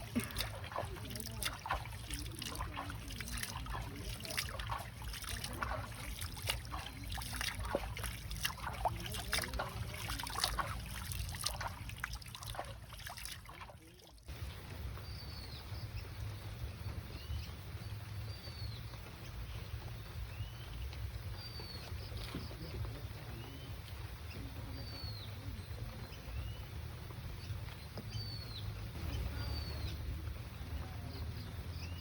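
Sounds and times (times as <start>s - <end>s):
rain dripping onto water: 0.0s - 15.1s
outdoor hush: 0.0s - 32.0s.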